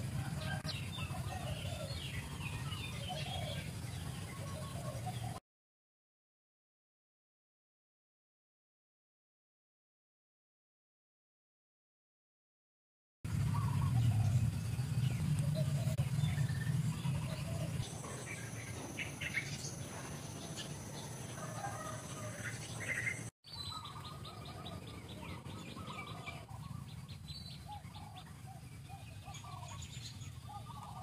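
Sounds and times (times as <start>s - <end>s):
birds chirping: 0.0s - 5.4s, 13.3s - 31.0s.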